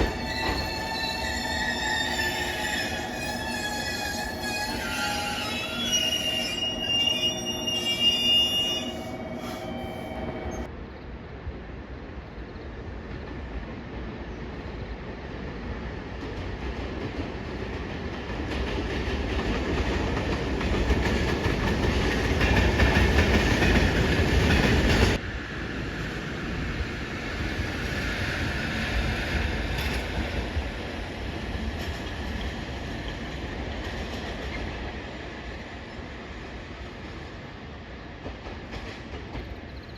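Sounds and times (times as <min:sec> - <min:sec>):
train wheels clattering on rails: 0:00.0 - 0:06.8, 0:15.9 - 0:25.2, 0:26.0 - 0:39.9.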